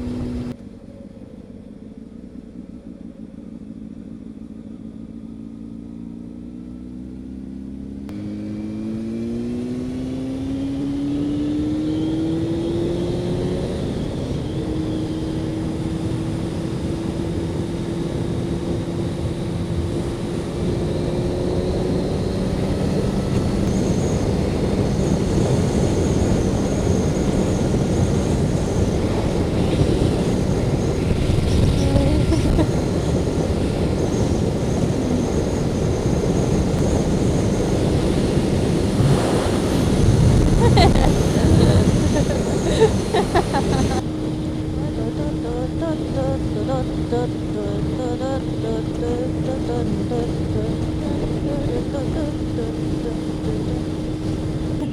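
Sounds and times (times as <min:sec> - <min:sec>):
motorcycle engine accelerating: 0:00.0 - 0:54.9
wind on microphone: 0:21.5 - 0:54.9.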